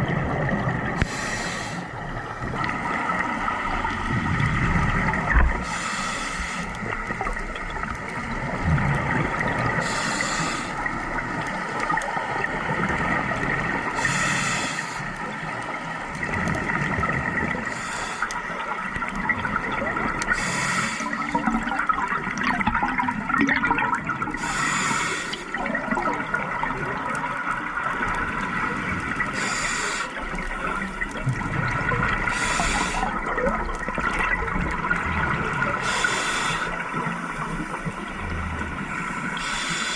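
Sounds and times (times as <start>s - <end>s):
gurgling bubbles: 0.0s - 39.9s
regulator breathing hiss: 1.0s - 2.0s, 5.5s - 7.0s, 9.8s - 11.9s, 14.0s - 15.3s, 17.6s - 18.7s, 20.3s - 21.4s, 24.4s - 25.6s, 29.3s - 31.1s, 32.3s - 33.2s, 35.8s - 36.8s, 38.9s - 39.9s.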